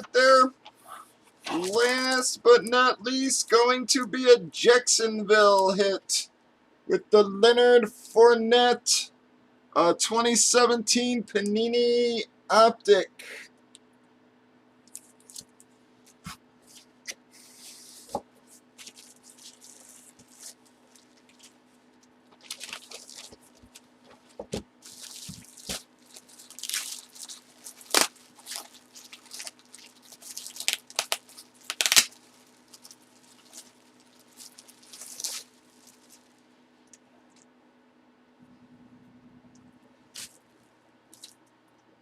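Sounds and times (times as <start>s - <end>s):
faint steady hum: 0.0s - 42.0s
wrappers crinkling and tearing: 1.4s - 2.2s, 14.9s - 36.4s, 40.2s - 40.4s.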